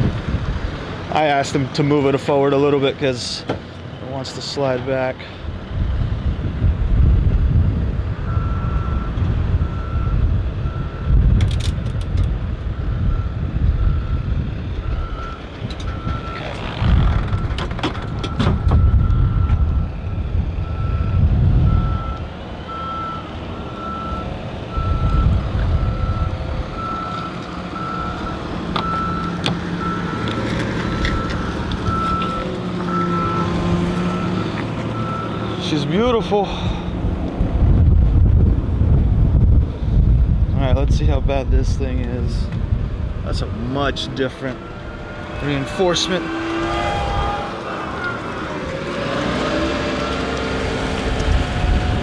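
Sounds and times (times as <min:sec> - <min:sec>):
truck engine rumble: 0:00.0 - 0:52.0
backup alarm beeping: 0:20.6 - 0:30.3, 0:31.0 - 0:35.8.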